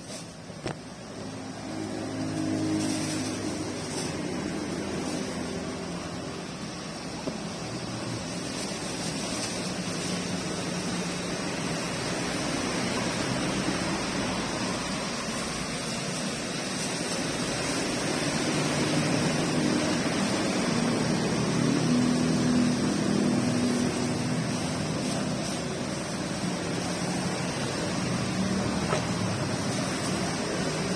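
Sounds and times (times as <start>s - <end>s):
rain hiss: 0.0s - 30.9s
vehicle engine hum: 0.0s - 30.9s.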